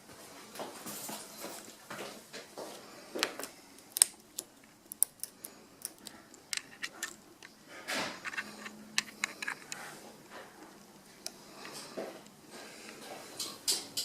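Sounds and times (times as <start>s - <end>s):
small objects clicking and knocking: 3.4s - 9.8s.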